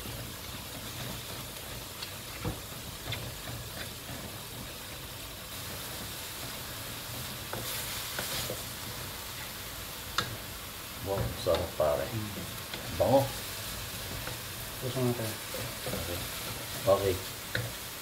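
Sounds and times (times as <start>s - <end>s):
meat sizzling in a wok: 0.0s - 18.0s
wooden spatula stirring and scraping: 0.0s - 18.0s
spatula clicking against pan: 10.1s - 10.4s, 17.5s - 17.8s.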